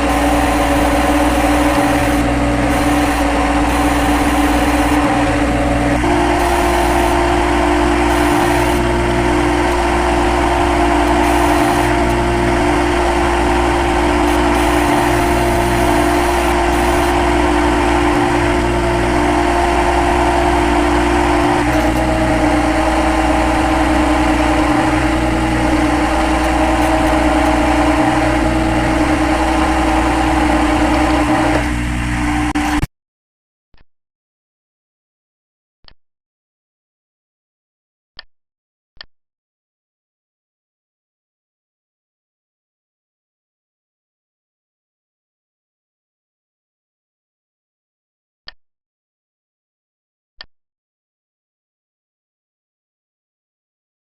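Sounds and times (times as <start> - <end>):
lathe motor hum and whine: 0.0 - 32.8.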